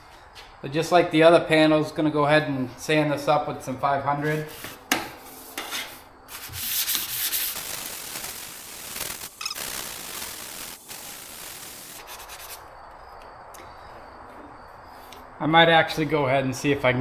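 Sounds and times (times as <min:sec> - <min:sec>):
sandpaper rubbing painted panel: 0:04.2 - 0:04.8, 0:05.4 - 0:07.9, 0:11.6 - 0:12.7.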